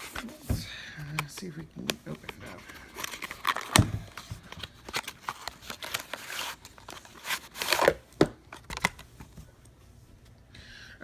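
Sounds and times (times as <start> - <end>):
packaging tearing and crinkling: 2.2 - 9.1.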